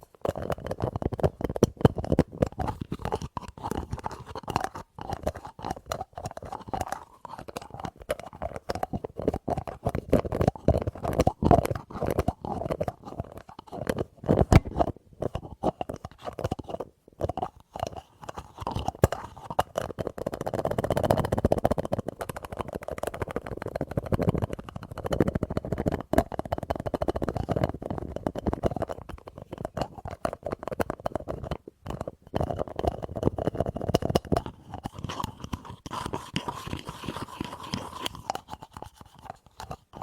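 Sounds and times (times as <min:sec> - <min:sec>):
rubbing or scratching: 0:34.4 - 0:40.0.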